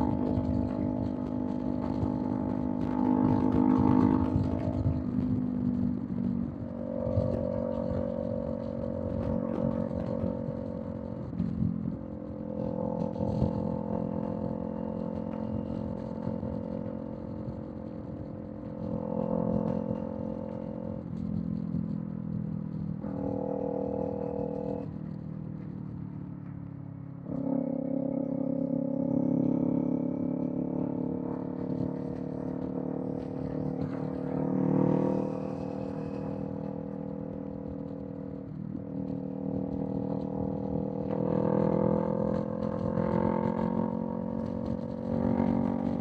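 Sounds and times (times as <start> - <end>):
motorcycle engine cruising: 0.0 - 46.0.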